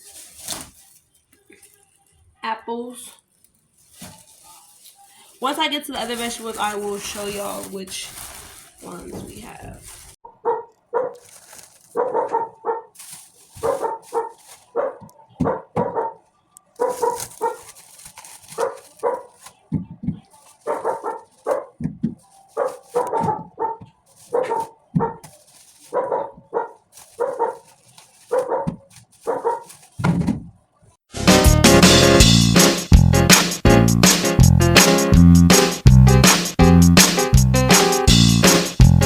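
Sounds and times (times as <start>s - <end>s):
dog barking: 10.2s - 13.0s, 13.6s - 17.8s, 18.5s - 19.5s, 20.6s - 29.8s.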